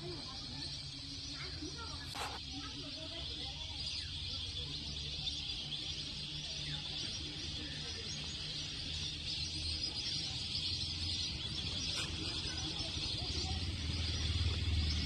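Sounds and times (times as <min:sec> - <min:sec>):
high-pitched wildlife chorus: 0:00.0 - 0:15.0
low engine hum: 0:10.8 - 0:15.0.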